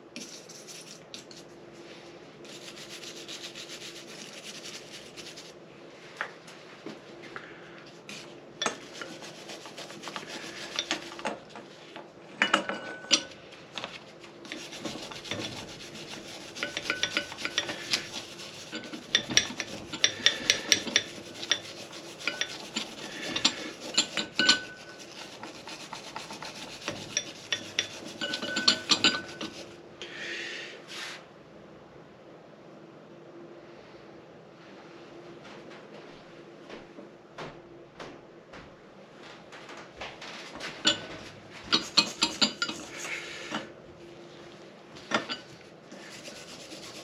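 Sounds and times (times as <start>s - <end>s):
hand scrubbing engine parts: 2.4s - 5.6s, 8.0s - 11.9s, 13.2s - 29.8s, 40.9s - 43.6s, 45.0s - 47.0s.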